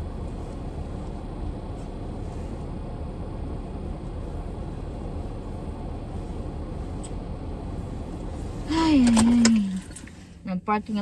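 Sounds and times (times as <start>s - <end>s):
car interior engine rumble: 0.0s - 11.0s.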